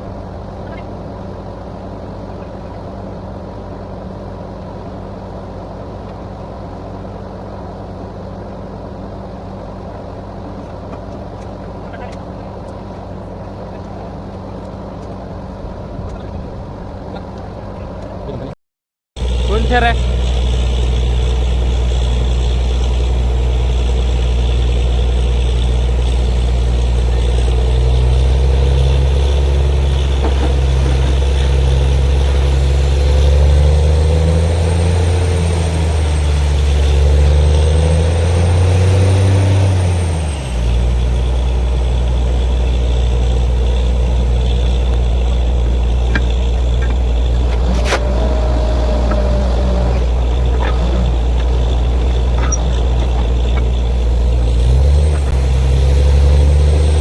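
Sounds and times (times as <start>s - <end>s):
drilling rig engine running: 19.2s - 57.0s.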